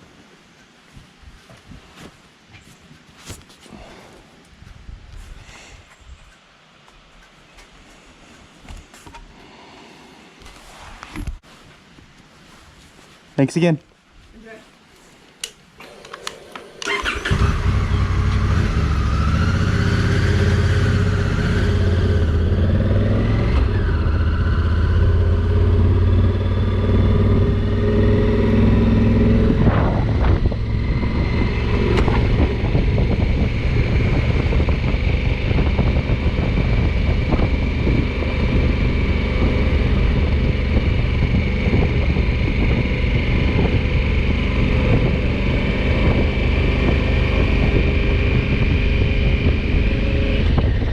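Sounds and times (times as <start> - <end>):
motorcycle engine revving: 16.8 - 50.9.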